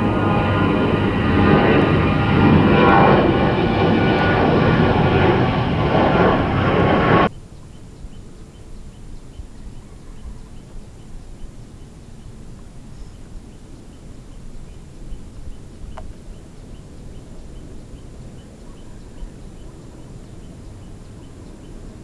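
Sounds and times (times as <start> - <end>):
jet engines running: 0.0 - 7.3
faint high chirps: 7.3 - 22.0.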